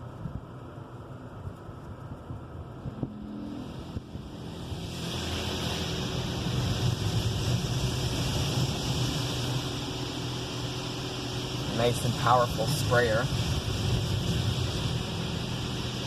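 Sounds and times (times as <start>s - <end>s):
low machine rumble: 0.0s - 16.0s
high-pressure water spray: 3.4s - 16.0s.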